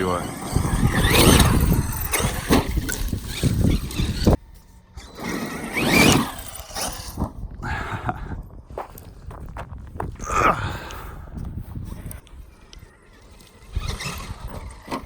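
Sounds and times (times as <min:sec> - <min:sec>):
electric motor whining: 0:00.0 - 0:07.7, 0:12.5 - 0:15.0
rumbling tyre and ground noise: 0:00.0 - 0:15.0.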